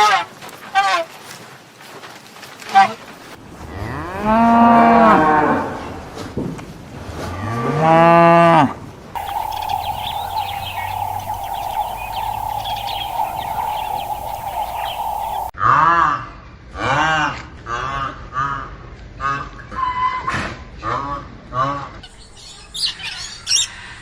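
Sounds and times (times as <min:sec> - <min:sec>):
faint chirping: 0:09.2 - 0:15.5
steady hum: 0:09.2 - 0:15.5.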